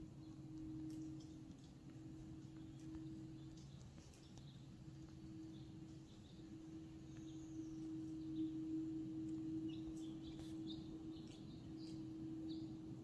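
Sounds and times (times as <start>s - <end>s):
steady low hum: 0.0s - 13.0s
faint bird chirps: 2.6s - 13.0s.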